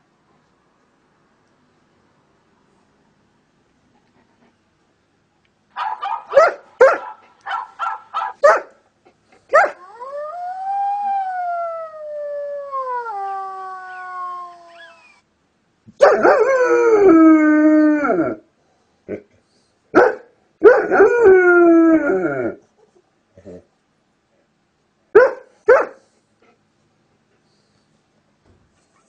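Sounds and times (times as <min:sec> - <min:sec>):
dog yipping and barking: 0:05.8 - 0:08.7, 0:09.5 - 0:09.8, 0:25.2 - 0:26.0
dog howling: 0:09.6 - 0:15.2.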